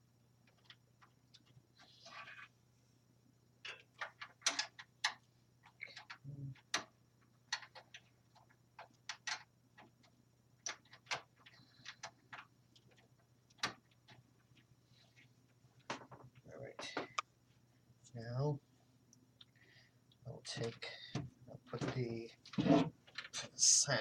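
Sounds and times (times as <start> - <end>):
hardware clicking inside computer case: 3.7 - 14.6.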